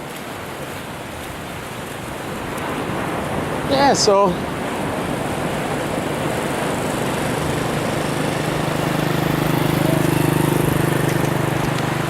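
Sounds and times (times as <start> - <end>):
surf: 0.0 - 12.0
wind: 0.0 - 12.0
small engine humming: 5.6 - 12.0.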